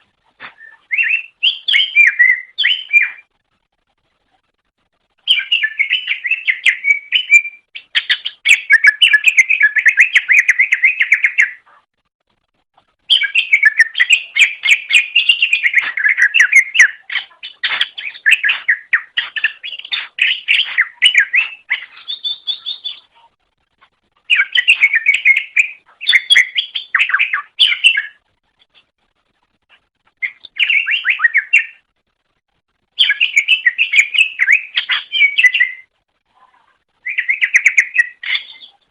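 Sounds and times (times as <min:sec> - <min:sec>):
bird twittering chirps and trills: 0:00.5 - 0:03.3, 0:05.2 - 0:11.6, 0:13.0 - 0:23.3, 0:24.2 - 0:28.8, 0:30.1 - 0:31.9, 0:32.9 - 0:35.9, 0:37.0 - 0:38.9.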